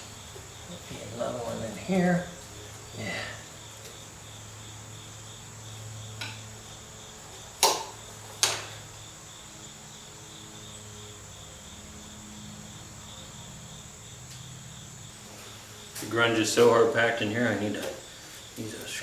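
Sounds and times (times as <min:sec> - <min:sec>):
sharp metallic knocks: 0:07.6 - 0:08.7.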